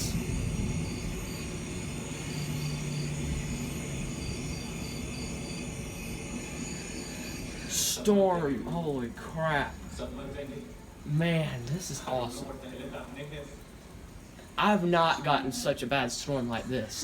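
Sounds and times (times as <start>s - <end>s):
faint high chirping: 0.0s - 7.8s
wind: 0.0s - 11.9s
rain hissing: 0.0s - 17.0s.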